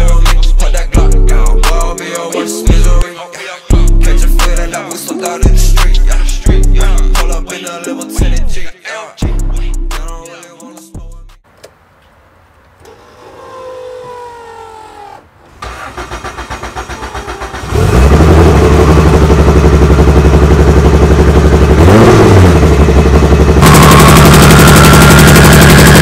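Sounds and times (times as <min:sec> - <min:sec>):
engine cranking: 0:15.5 - 0:19.6, 0:23.6 - 0:26.0
engine revving: 0:15.6 - 0:26.0
loud engine idling: 0:15.9 - 0:26.0.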